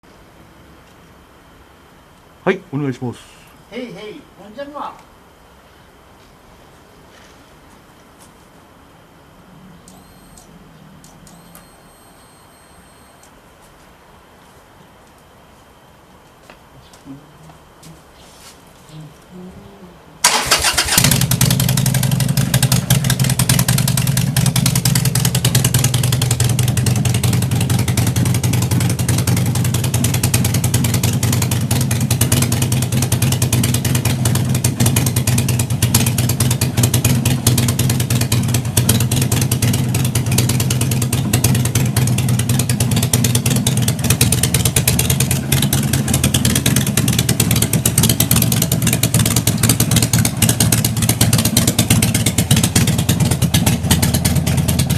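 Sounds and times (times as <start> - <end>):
motorcycle engine starting and idling: 20.2 - 54.9.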